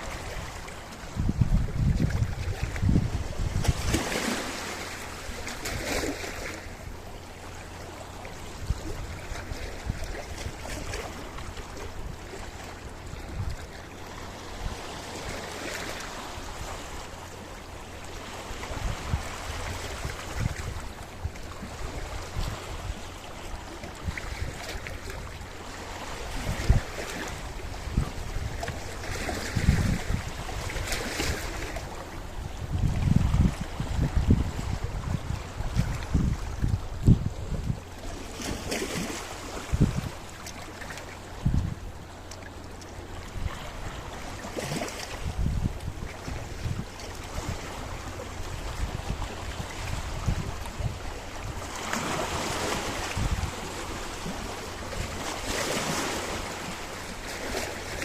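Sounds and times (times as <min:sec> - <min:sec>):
sea waves on rocky shore: 0:00.0 - 0:58.0
wind rumble on microphone: 0:00.0 - 0:58.0.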